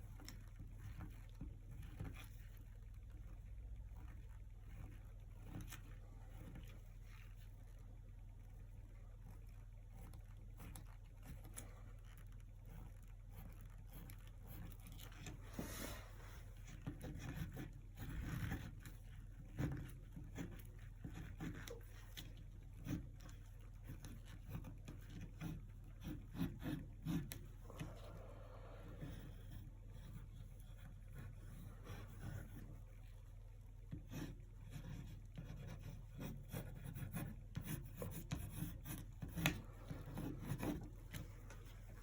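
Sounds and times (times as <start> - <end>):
low electrical hum: 0.0 - 42.0
paintbrush swishing and dabbing: 14.5 - 16.7.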